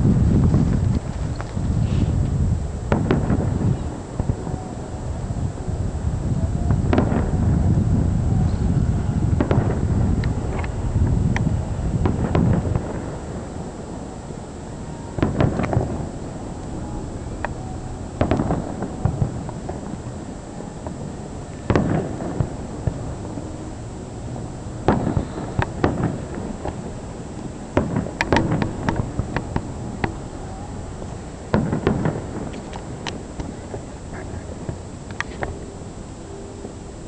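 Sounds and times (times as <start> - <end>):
fireworks crackling: 0.0 - 37.0
fireworks shells bursting: 11.5 - 35.6.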